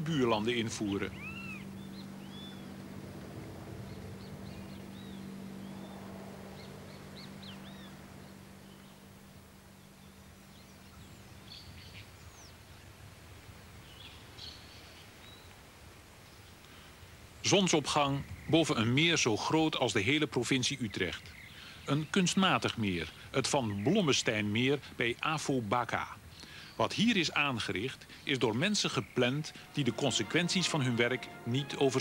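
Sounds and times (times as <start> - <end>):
steady low hum: 0.0 - 14.4
birds chirping: 0.0 - 15.6, 16.2 - 32.0
faint outdoor ambience: 0.0 - 32.0.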